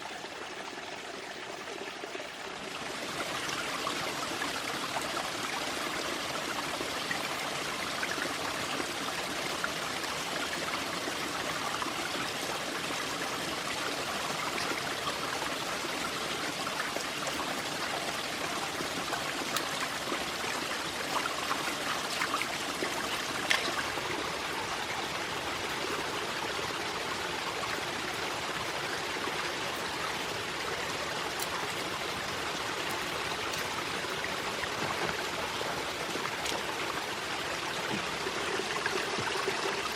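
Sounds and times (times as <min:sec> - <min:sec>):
flowing water: 0:00.0 - 0:39.9.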